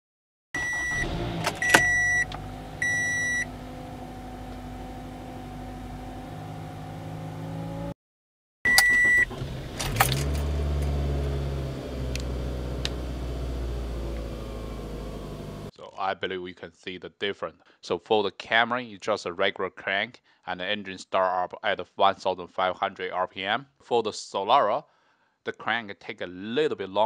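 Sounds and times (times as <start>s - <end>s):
car engine cranking: 0.6s - 7.9s, 8.7s - 15.7s
car engine idling: 0.7s - 7.9s, 9.2s - 15.7s
dashboard chime beeping: 1.6s - 3.5s, 8.7s - 9.3s.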